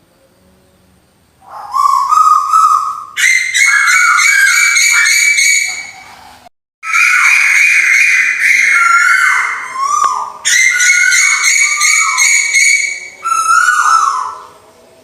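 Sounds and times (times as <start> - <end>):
whistled bird call: 1.4 - 14.6.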